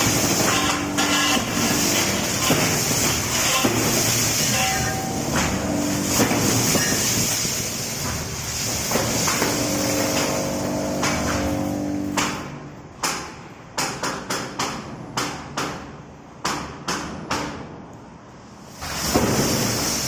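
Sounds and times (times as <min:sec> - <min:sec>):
rushing hiss: 0:00.0 - 0:10.6, 0:18.6 - 0:20.0
machine running: 0:00.0 - 0:13.0.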